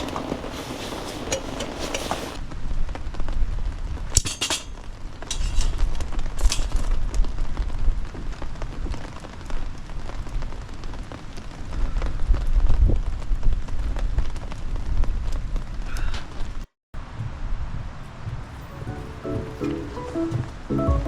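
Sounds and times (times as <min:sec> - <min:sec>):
rain falling: 0:00.0 - 0:16.4, 0:17.0 - 0:21.0
wind on microphone: 0:11.7 - 0:15.6, 0:17.0 - 0:20.7.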